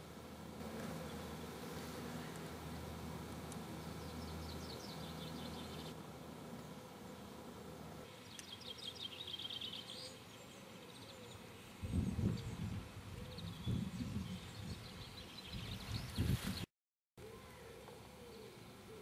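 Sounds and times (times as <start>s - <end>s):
songbird singing: 3.5s - 7.4s, 8.1s - 16.6s, 17.2s - 19.0s
wind buffeting microphone: 11.8s - 16.7s.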